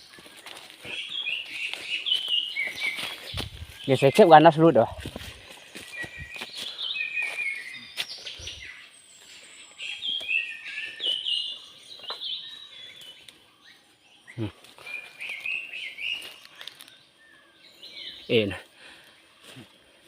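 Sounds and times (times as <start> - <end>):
songbird whistling notes: 5.6 - 18.3.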